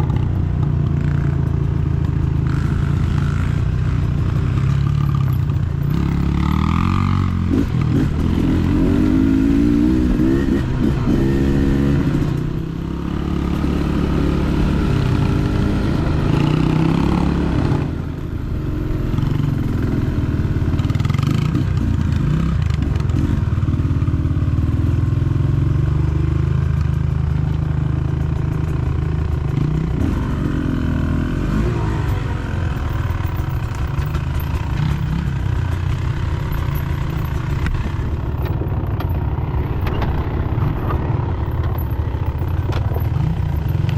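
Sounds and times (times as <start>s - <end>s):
dirt bike engine revving: 5.9s - 23.4s, 29.6s - 43.9s.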